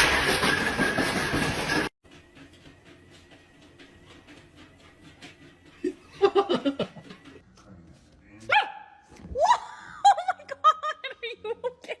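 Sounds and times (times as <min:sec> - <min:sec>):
dog barking: 0:08.5 - 0:09.0.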